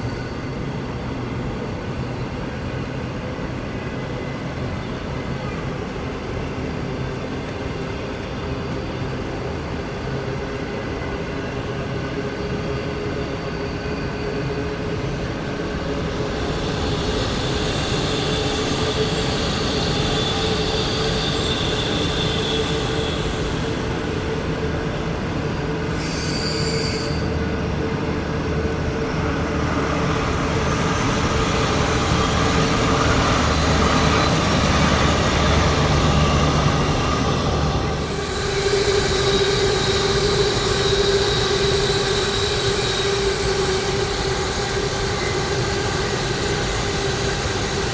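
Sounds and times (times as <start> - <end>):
train rumbling along track: 0.0 - 47.9
high squeal: 12.0 - 47.9.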